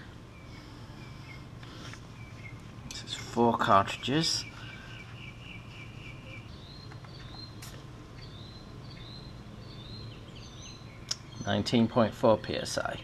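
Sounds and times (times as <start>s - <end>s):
faint bird chirping: 0.0s - 13.0s
low steady hum: 0.0s - 13.0s.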